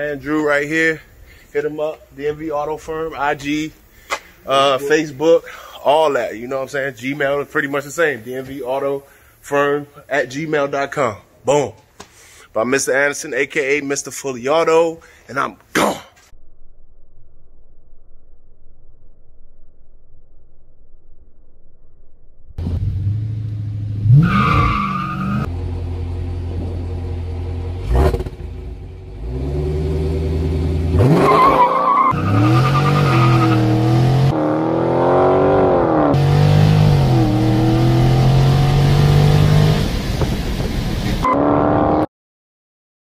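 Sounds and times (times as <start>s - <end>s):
car engine revving and accelerating: 22.6s - 40.4s, 41.1s - 42.1s.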